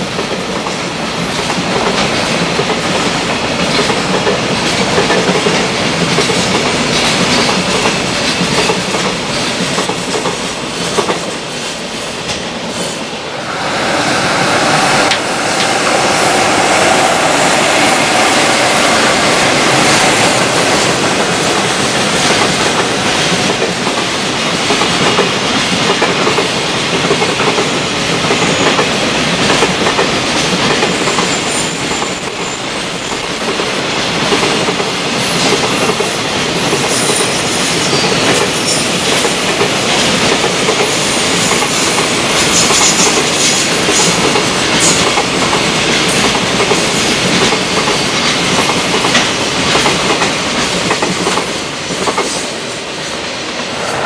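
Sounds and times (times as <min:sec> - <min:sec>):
train wheels clattering over rail joints: 0:01.5 - 0:11.4, 0:19.8 - 0:31.4.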